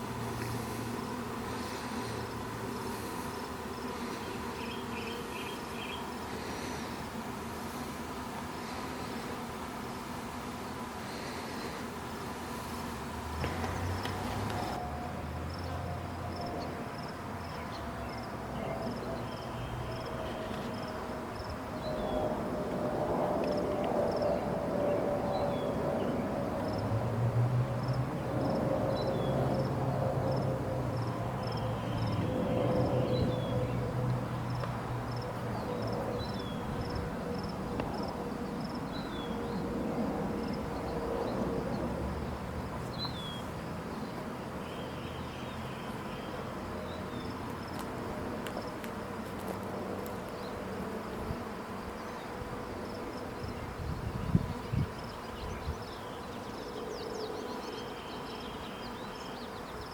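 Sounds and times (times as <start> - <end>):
swarm of bees buzzing: 0.0 - 59.9.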